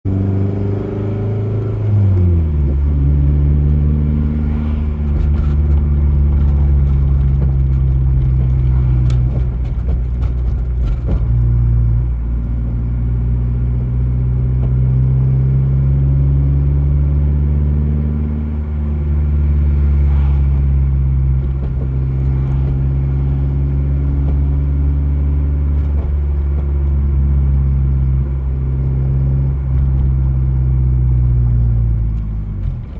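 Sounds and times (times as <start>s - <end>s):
car engine running: 0.0s - 32.9s
sharp clunking knocks: 5.0s - 11.9s.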